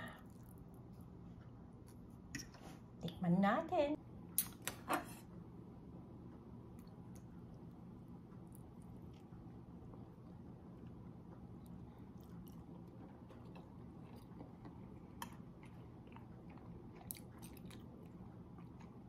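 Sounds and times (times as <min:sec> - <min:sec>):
low steady hum: 0:00.0 - 0:19.0
person chewing food: 0:00.1 - 0:01.1, 0:06.7 - 0:19.0.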